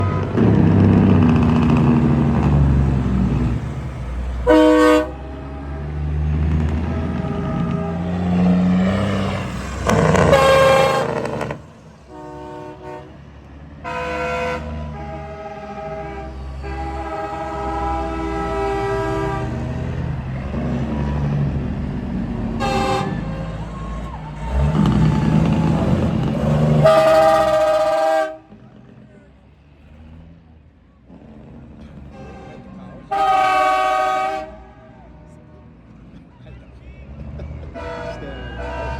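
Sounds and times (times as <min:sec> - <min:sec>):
low rumble of truck engines: 0:00.0 - 0:38.9
truck air horns blowing: 0:01.6 - 0:20.7, 0:22.5 - 0:28.6, 0:32.0 - 0:35.4, 0:37.7 - 0:38.9.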